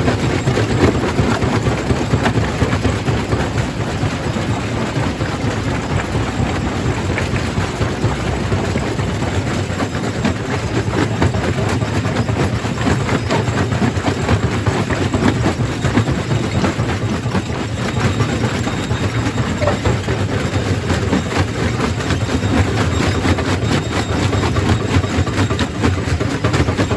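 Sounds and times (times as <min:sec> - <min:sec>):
heavy machine drone: 0:17.7 - 0:24.0.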